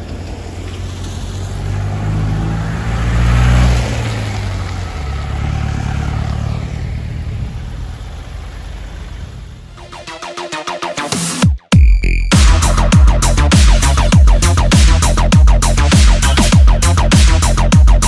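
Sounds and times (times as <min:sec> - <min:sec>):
diesel engine pulling: 0:00.0 - 0:10.2
tyre and road noise: 0:00.0 - 0:10.9.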